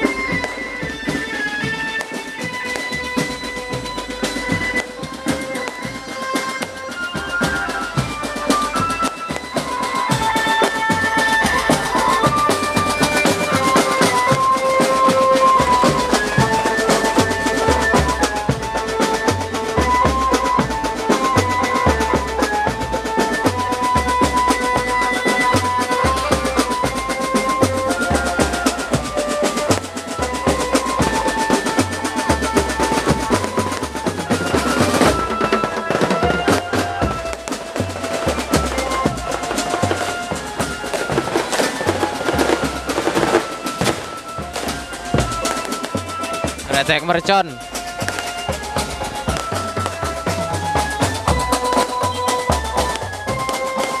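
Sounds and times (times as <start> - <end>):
loud dance music with heavy bass: 46.7 - 47.6.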